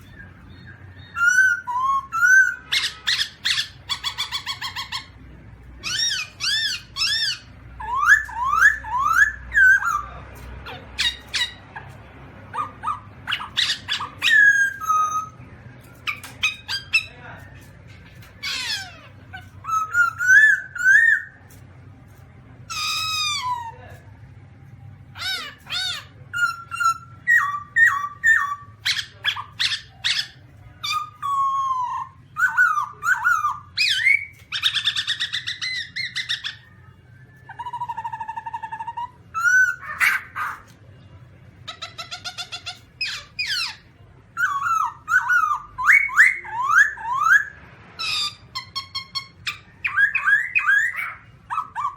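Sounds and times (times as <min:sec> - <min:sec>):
bird singing whistled notes: 0:00.0 - 0:05.0, 0:05.8 - 0:10.1, 0:12.6 - 0:17.1, 0:19.6 - 0:21.4, 0:25.2 - 0:40.6.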